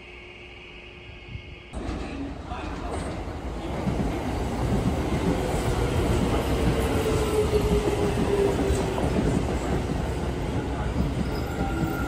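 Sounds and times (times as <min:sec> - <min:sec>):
train wheels rumbling on rails: 0:01.7 - 0:12.0.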